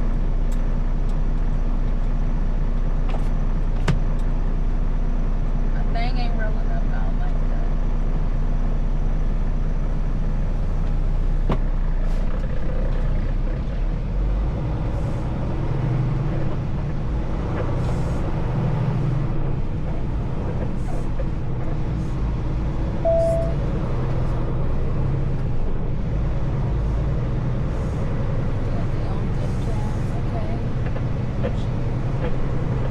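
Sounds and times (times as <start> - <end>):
truck diesel engine droning: 0.0 - 32.9
brief beep: 23.0 - 23.6.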